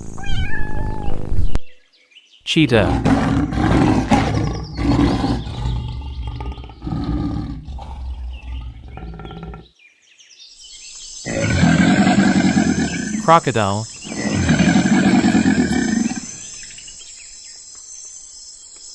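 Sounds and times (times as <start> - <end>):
cheetah growling and snarling: 2.8 - 9.7, 11.3 - 13.2, 14.0 - 16.8
loud rough animal call: 2.8 - 9.7, 11.3 - 13.2, 14.0 - 16.5.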